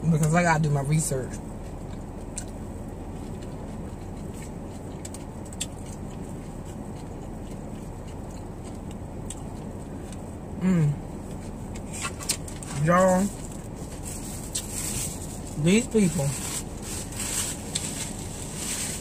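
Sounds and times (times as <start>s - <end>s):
car cabin background noise: 0.0s - 19.0s
chewing and mouth clicks: 1.3s - 10.4s
woman humming mmm: 10.6s - 11.0s.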